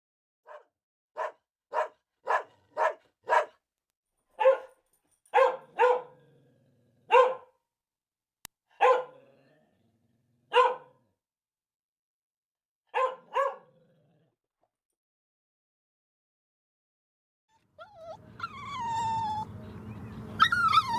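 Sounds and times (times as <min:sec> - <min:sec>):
dog barking: 0:00.4 - 0:03.6, 0:04.4 - 0:06.2, 0:07.1 - 0:07.6, 0:08.7 - 0:09.2, 0:10.5 - 0:11.1, 0:12.9 - 0:13.7.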